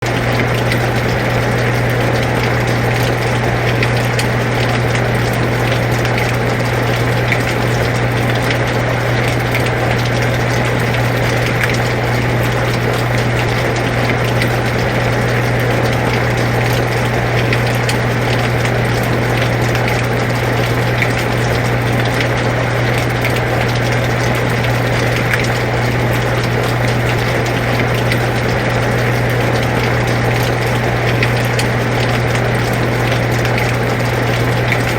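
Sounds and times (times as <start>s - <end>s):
air conditioner humming: 0.0s - 34.9s.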